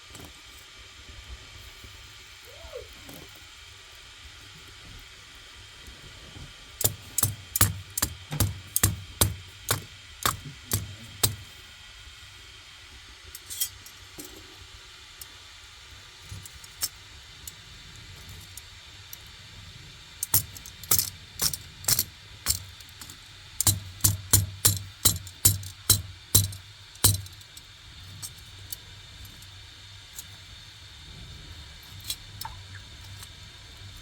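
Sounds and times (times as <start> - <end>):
sharp knocks: 6.8 - 11.4.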